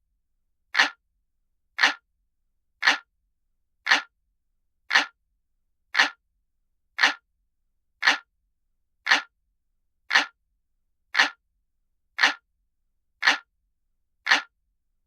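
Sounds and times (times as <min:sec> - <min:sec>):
clock ticking: 0:00.8 - 0:01.0, 0:01.8 - 0:02.0, 0:02.8 - 0:03.1, 0:03.9 - 0:04.1, 0:04.9 - 0:05.2, 0:06.0 - 0:06.2, 0:07.0 - 0:07.2, 0:08.0 - 0:08.3, 0:09.1 - 0:09.3, 0:10.1 - 0:10.4, 0:11.2 - 0:11.4, 0:12.2 - 0:12.4, 0:13.2 - 0:13.5, 0:14.3 - 0:14.5.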